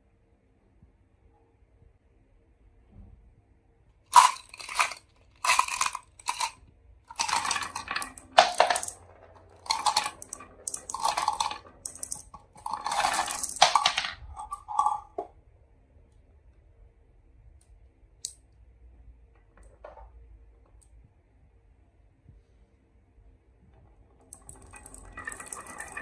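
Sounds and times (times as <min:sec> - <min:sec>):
marbles rolling down marble run: 0:04.1 - 0:15.3, 0:24.1 - 0:26.0.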